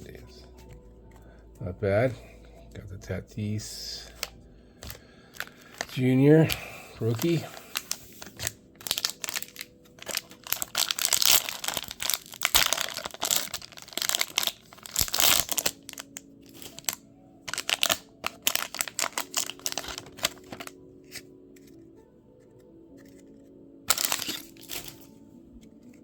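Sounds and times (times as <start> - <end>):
foil wrapper crinkling and tearing: 4.0 - 21.2, 23.9 - 25.1.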